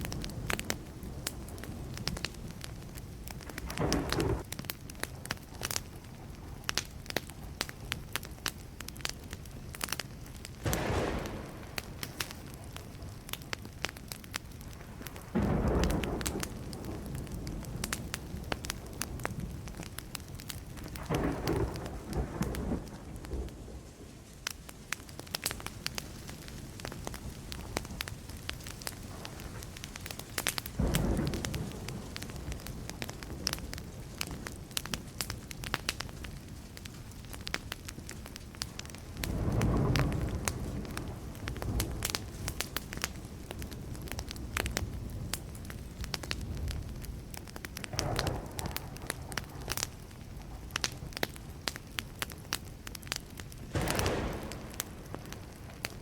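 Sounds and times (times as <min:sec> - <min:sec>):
distant thunder rumbling: 0:00.0 - 0:04.5, 0:10.6 - 0:24.2, 0:26.5 - 0:34.7, 0:38.8 - 0:51.2, 0:53.7 - 0:56.0
wood fire crackling and popping: 0:00.0 - 0:56.0.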